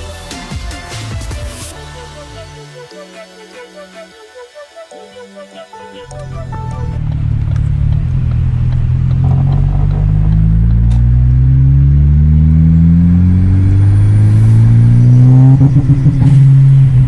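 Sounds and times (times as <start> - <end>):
car engine accelerating: 6.1 - 17.0.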